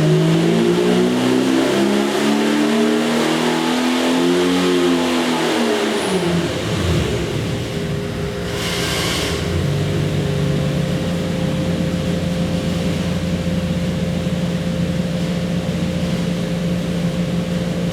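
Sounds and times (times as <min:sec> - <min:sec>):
engine running steadily: 0:05.9 - 0:17.9
brief hiss: 0:08.4 - 0:09.4.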